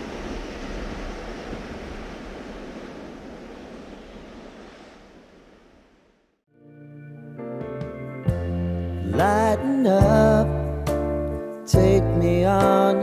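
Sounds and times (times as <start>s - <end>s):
music with held notes: 6.6s - 13.0s.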